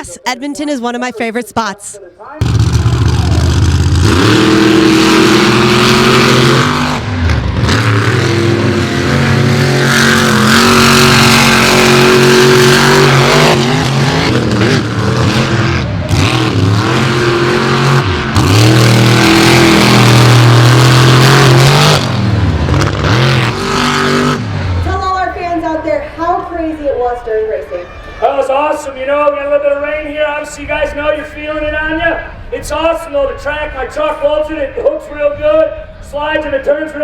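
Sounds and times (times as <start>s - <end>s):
truck engines revving: 0.0s - 27.1s.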